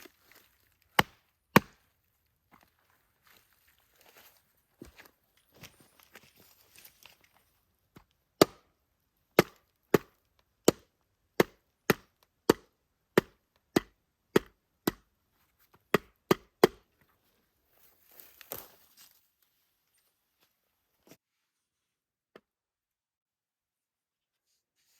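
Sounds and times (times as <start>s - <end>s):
wood chopping strikes: 0.9s - 1.9s, 8.4s - 8.7s, 9.4s - 15.1s, 15.9s - 17.0s
soft rustle: 5.3s - 7.6s, 17.2s - 22.0s.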